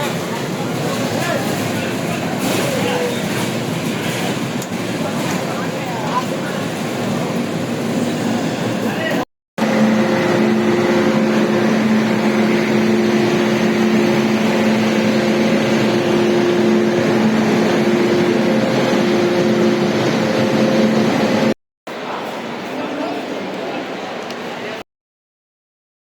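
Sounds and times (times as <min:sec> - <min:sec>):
train wheel and wind rush: 0:00.0 - 0:24.8
droning hum: 0:08.6 - 0:21.6.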